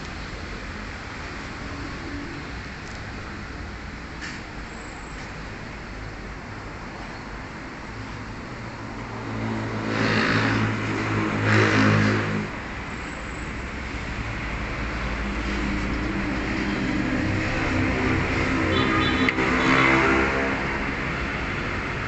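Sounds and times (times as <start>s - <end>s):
engine revving: 9.3s - 12.6s.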